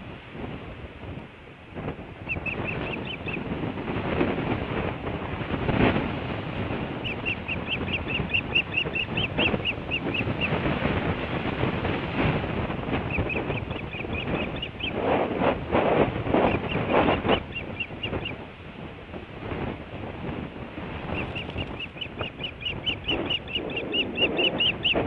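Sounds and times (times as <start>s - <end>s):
steady rushing noise: 0.0s - 25.0s
osprey chirping: 2.2s - 3.5s, 7.0s - 10.6s, 13.0s - 15.0s, 16.4s - 18.4s, 21.1s - 25.0s.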